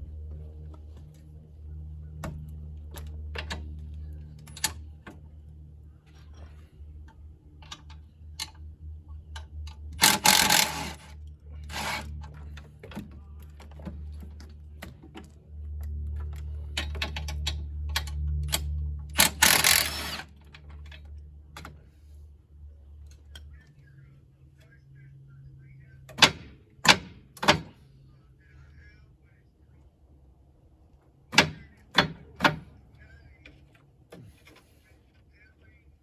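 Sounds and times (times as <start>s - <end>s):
low steady hum: 0.0s - 36.0s
tools and parts clicking: 9.4s - 12.4s, 16.7s - 21.7s.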